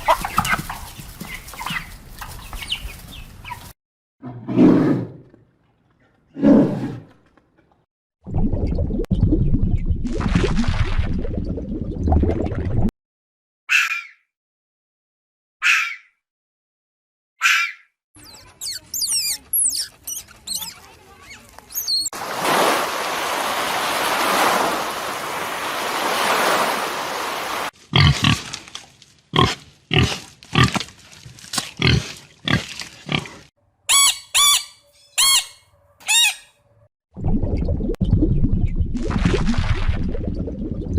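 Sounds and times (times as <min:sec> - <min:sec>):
high quick chirping calls: 0:18.2 - 0:20.8, 0:21.7 - 0:22.2, 0:33.9 - 0:36.5.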